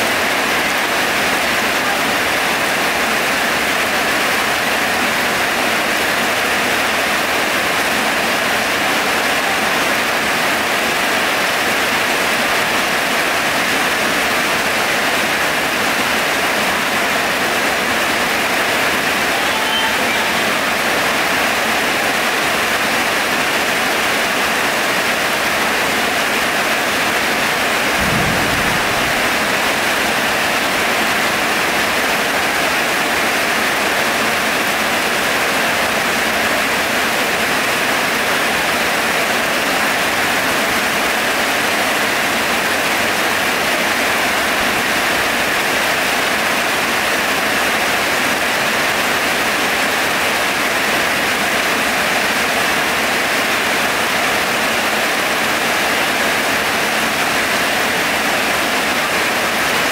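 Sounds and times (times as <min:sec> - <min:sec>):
heavy rain pouring: 0:00.0 - 0:59.9
low thump: 0:27.9 - 0:29.9.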